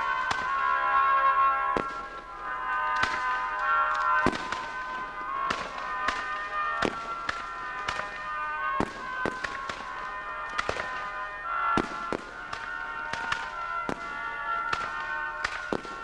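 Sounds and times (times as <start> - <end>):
fireworks bangs and cracks: 0.0 - 16.0
music of held notes: 0.0 - 16.0.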